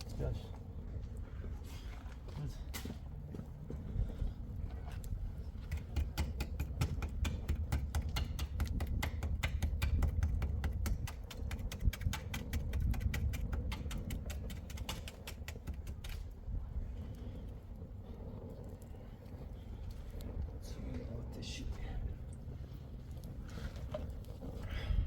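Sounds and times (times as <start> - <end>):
steady low rumble: 0.0 - 11.2, 15.8 - 25.0
rapid sharp clicks: 5.7 - 16.3.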